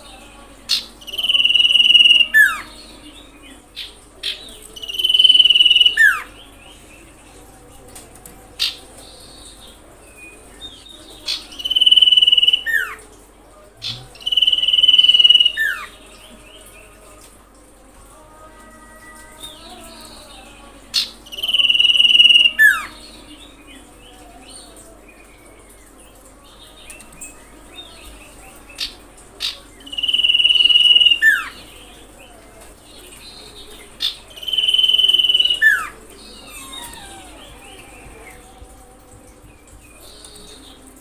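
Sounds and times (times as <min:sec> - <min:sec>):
bird whistling song: 0:04.8 - 0:06.3, 0:11.3 - 0:13.0, 0:13.8 - 0:15.9, 0:28.8 - 0:31.6, 0:34.0 - 0:38.3
faint bird chirps: 0:34.4 - 0:38.5.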